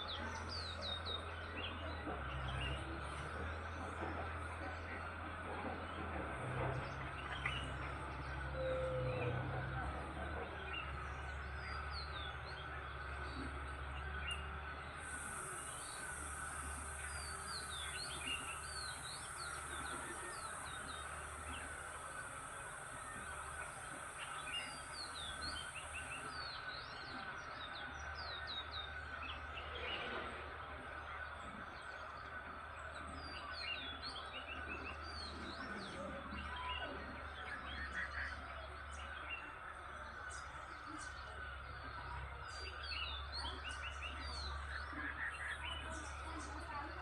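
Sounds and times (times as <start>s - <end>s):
small birds chirping: 0.0s - 30.1s, 31.2s - 47.0s
steady high hiss: 15.0s - 26.5s.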